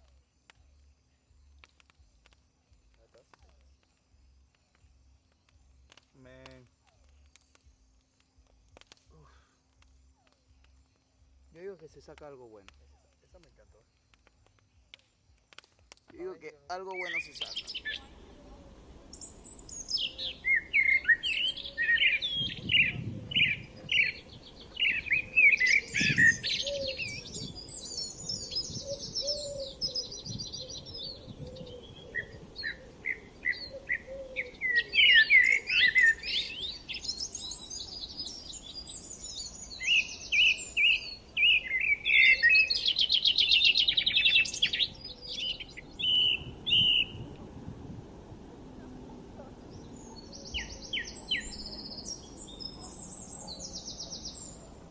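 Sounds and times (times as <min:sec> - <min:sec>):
small birds chirping and trilling: 0:16.8 - 0:47.4, 0:48.8 - 0:54.9.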